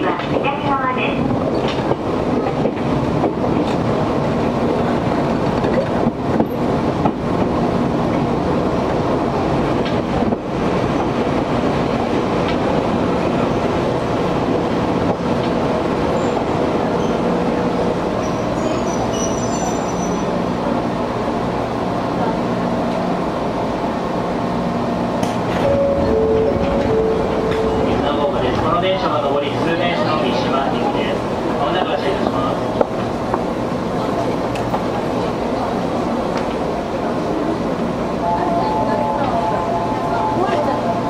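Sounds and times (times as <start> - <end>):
train wheel and rail noise: 0.0 - 41.0
gangway plates clanking: 25.2 - 30.4.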